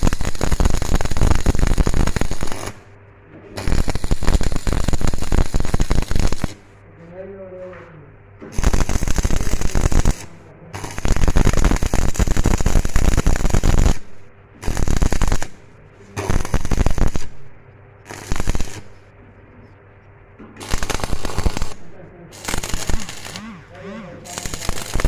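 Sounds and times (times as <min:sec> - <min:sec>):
welding arc crackling: 0:00.0 - 0:02.9, 0:03.5 - 0:06.7, 0:08.5 - 0:19.1, 0:20.6 - 0:25.0.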